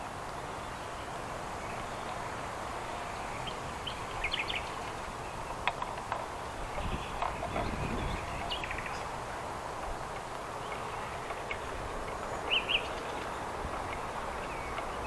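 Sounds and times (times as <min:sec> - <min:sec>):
songbirds chirping: 0:00.0 - 0:15.0
windy hiss: 0:00.0 - 0:15.0
wind rumble on microphone: 0:04.1 - 0:10.2.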